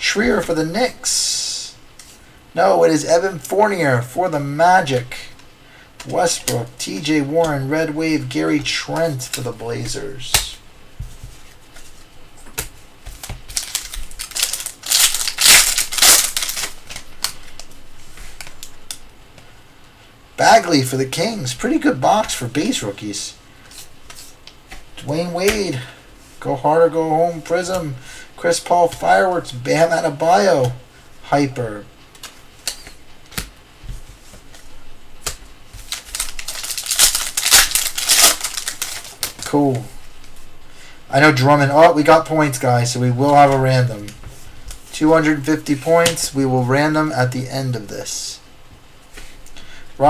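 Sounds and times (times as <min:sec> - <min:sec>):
trading cards clicking and rustling: 0:06.0 - 0:19.0, 0:21.6 - 0:25.8, 0:32.1 - 0:40.3, 0:43.3 - 0:46.4
foil pack tearing and crinkling: 0:13.2 - 0:17.7, 0:35.2 - 0:39.5.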